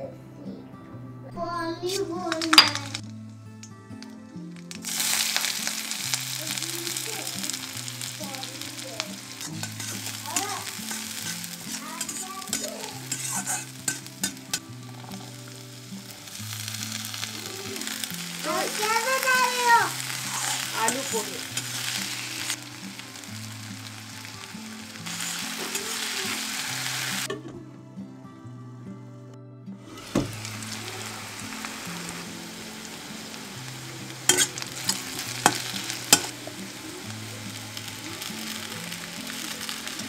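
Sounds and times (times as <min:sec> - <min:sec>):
onions sizzling in hot oil: 0:02.3 - 0:27.3, 0:29.8 - 0:40.0
spatula stirring in wok: 0:04.8 - 0:19.3, 0:19.9 - 0:27.2, 0:30.0 - 0:36.8.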